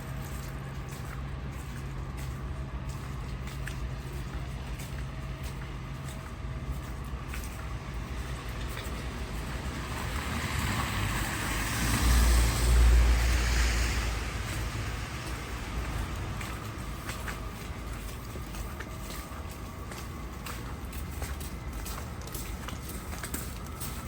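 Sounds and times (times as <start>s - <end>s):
low traffic hum: 0.0s - 24.0s
vehicle passing close by: 9.6s - 15.2s.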